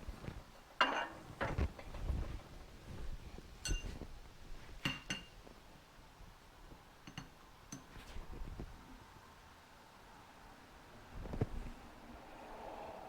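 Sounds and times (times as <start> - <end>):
metallic clinks and taps: 3.6 - 4.0, 4.8 - 5.3, 7.0 - 7.9.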